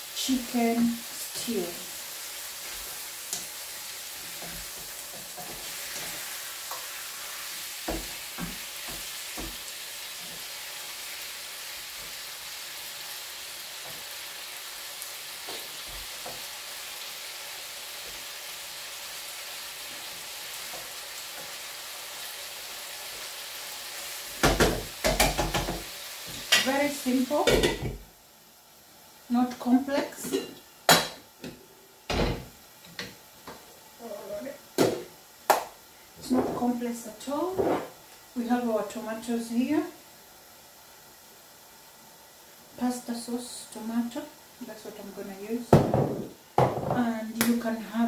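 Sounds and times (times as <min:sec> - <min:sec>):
chicken sizzling in frying pan: 0:00.0 - 0:48.0
wooden spatula knocking pan: 0:24.4 - 0:25.9.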